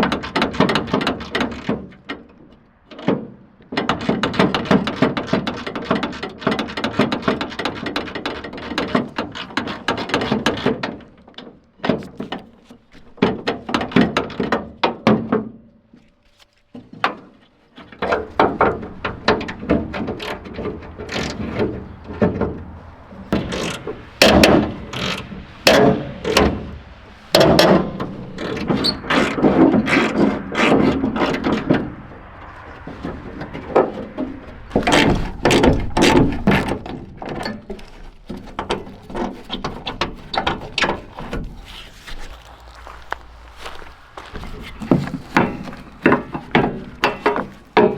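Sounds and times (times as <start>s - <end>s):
metal clatter: 17.8s - 47.9s.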